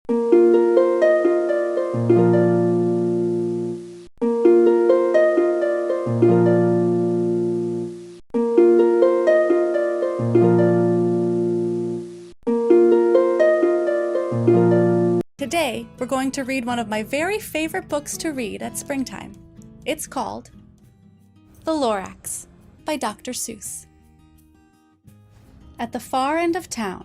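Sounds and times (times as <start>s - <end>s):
harp arpeggios: 0.1s - 3.6s, 4.4s - 7.8s, 8.4s - 15.2s.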